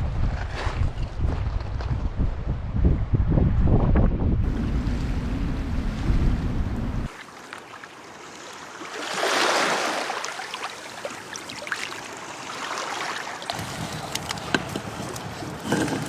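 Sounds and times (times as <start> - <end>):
wind buffeting microphone: 0.0 - 7.1
outdoor noise: 4.4 - 8.6, 13.5 - 16.0.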